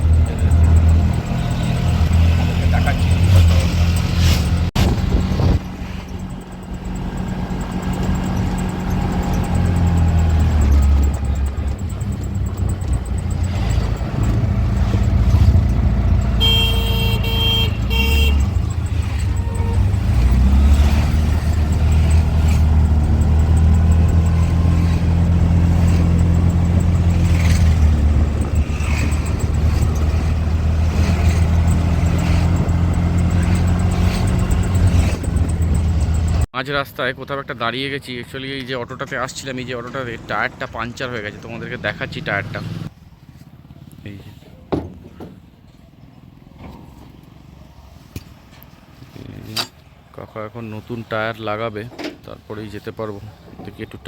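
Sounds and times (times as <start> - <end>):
auto-rickshaw engine droning: 0.0 - 36.5, 37.3 - 54.0
vehicle horn honking: 16.2 - 20.2.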